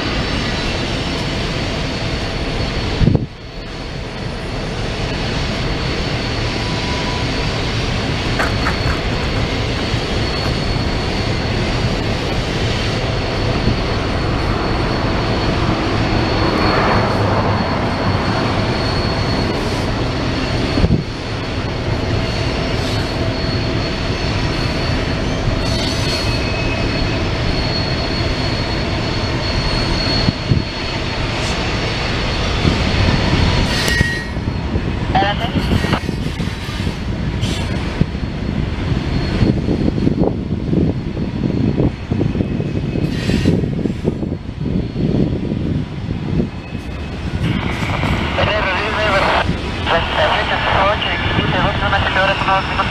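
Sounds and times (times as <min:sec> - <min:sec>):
freight train cars rumbling: 0:00.0 - 0:52.9
high wheel squeal: 0:05.7 - 0:34.9, 0:42.4 - 0:45.3.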